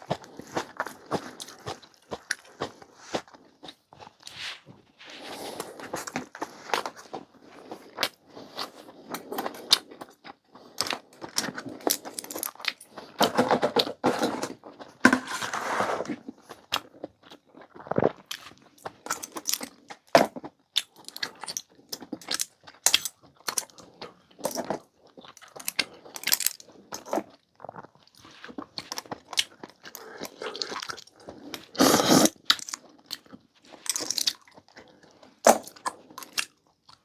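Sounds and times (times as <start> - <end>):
chewing and slurping: 0.0 - 13.2, 20.8 - 37.0.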